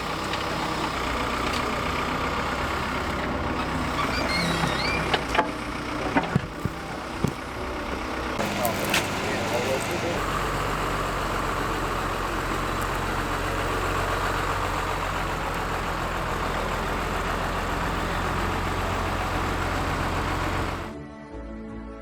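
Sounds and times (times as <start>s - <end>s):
construction machine engine humming: 0.0s - 21.0s
music: 20.7s - 22.0s.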